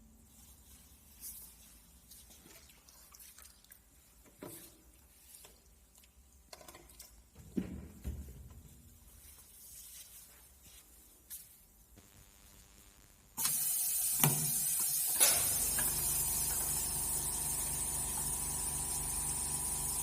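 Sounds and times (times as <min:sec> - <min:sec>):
water splashing and dripping: 0:02.1 - 0:04.2.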